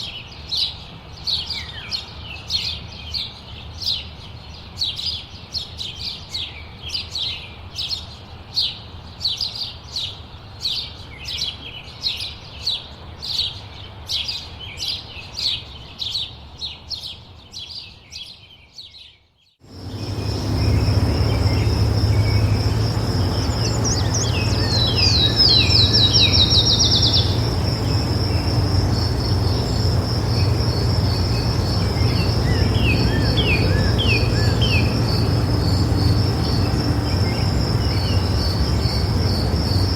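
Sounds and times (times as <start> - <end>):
bird chirping: 16.0 - 39.9
bird trilling: 19.7 - 39.9
low rumble: 19.7 - 39.9
pulsing insect trill: 19.7 - 39.9.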